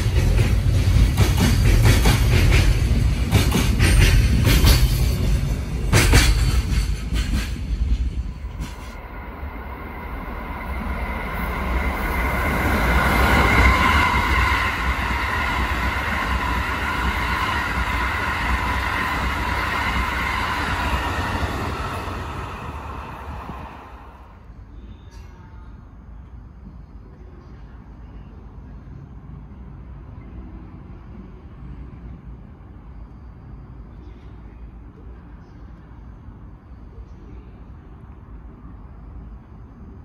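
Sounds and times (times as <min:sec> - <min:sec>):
wheels clicking over rail joints: 0:00.0 - 0:09.0
freight train rumbling past: 0:00.0 - 0:34.5.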